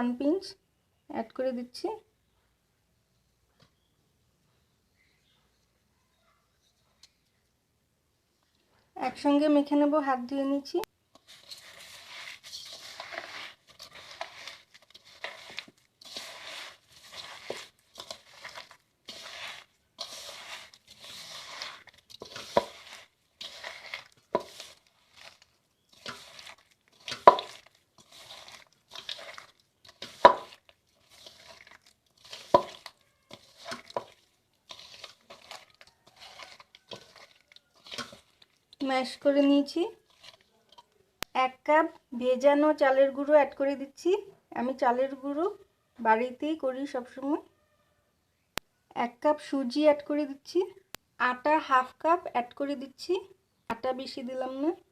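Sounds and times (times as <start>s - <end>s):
wet squishing and gritty crunching: 11.1s - 39.0s, 40.0s - 41.0s.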